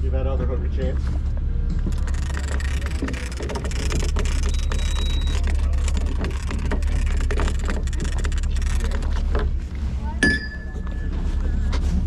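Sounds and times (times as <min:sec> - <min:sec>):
boat engine droning: 0:00.1 - 0:12.0
gear clicking and knocking on deck: 0:01.8 - 0:09.5.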